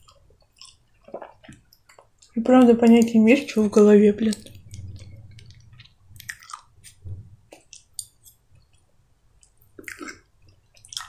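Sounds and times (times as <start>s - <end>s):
chewing soft food: 0.0s - 3.4s, 4.2s - 11.0s
wet mouth clicks and smacks: 4.3s - 8.4s.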